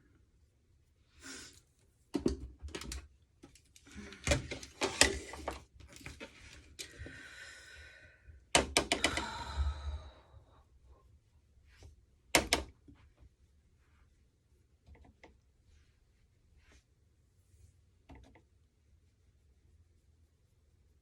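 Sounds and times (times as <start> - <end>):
sharp clicks and knocks: 8.6 - 9.2.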